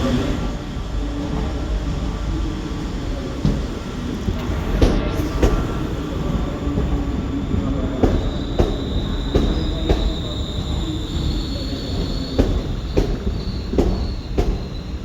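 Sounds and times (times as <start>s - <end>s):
train rumbling: 0.0s - 15.0s
wheels clacking over rail joints: 0.0s - 15.0s
high wheel squeal: 3.4s - 15.0s.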